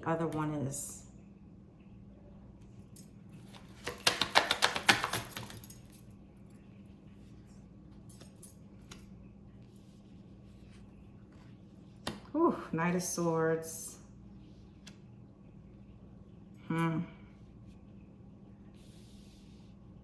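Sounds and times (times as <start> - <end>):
cards shuffling clicks: 3.5 - 5.6.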